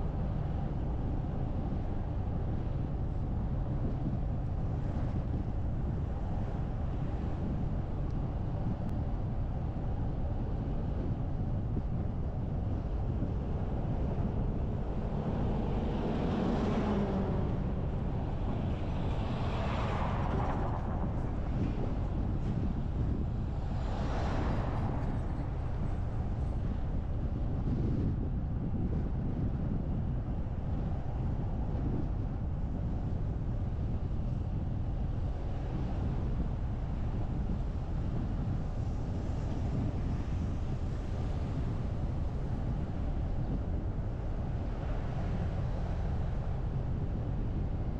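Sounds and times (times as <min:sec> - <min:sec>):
car road noise: 0:00.0 - 0:47.9.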